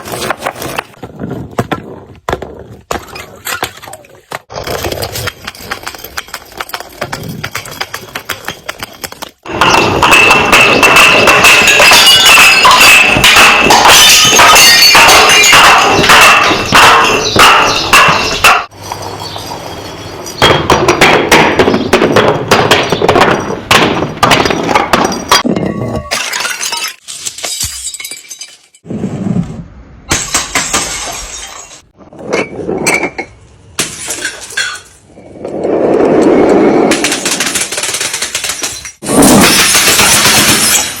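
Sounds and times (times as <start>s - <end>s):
glass bottles smashing: 7.6s - 18.5s, 19.2s - 28.8s, 30.1s - 31.9s, 37.1s - 41.0s.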